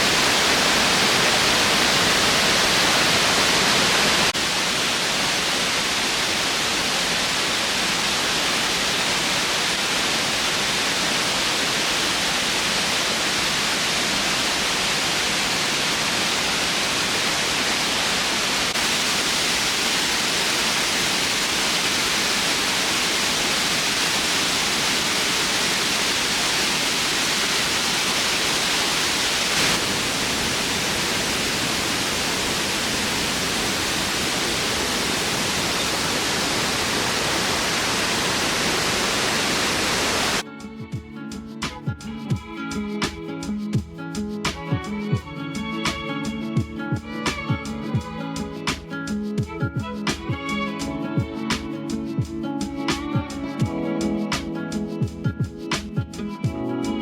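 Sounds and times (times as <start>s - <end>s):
waterfall rushing: 0.0s - 40.4s, 49.8s - 51.6s.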